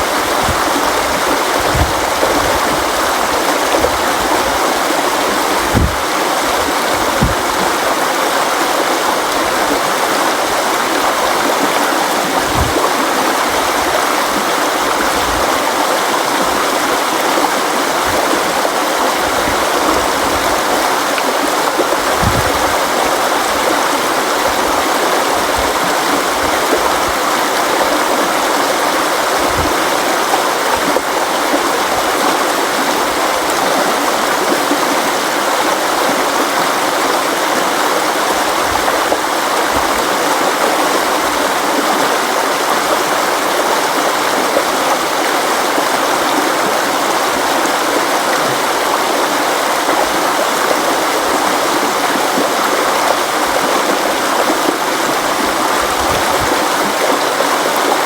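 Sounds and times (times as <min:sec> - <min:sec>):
river rushing over rocks: 0:00.0 - 0:58.0
brief low thuds: 0:01.6 - 0:02.7, 0:05.6 - 0:07.7, 0:12.4 - 0:12.8, 0:22.1 - 0:22.8.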